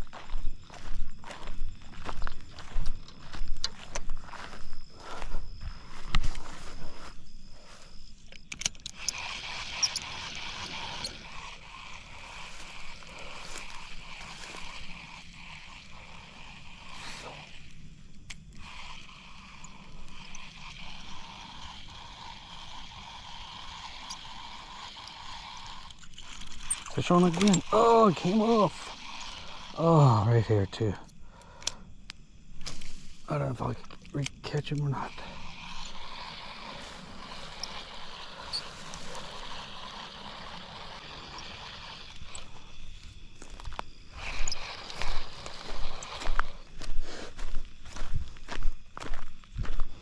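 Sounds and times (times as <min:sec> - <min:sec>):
hiss of flowing water: 0:08.9 - 0:31.9, 0:32.6 - 0:48.8
faint ticks: 0:30.8 - 0:33.0.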